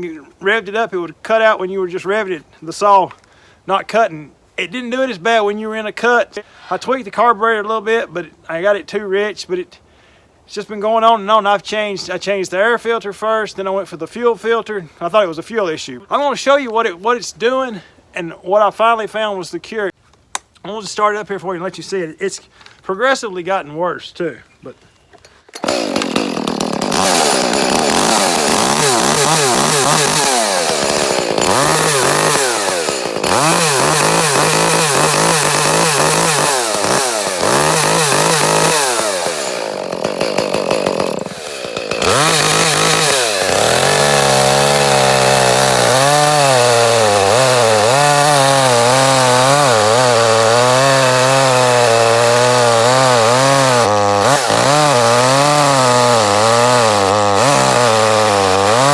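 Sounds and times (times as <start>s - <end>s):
chainsaw revving: 25.6s - 58.9s.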